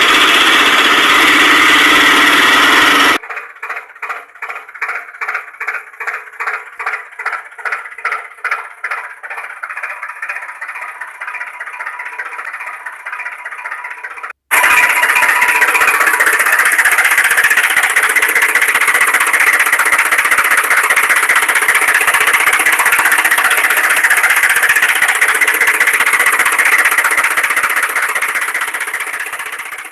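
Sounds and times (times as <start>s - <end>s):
small electric motor buzzing: 0.0s - 3.2s.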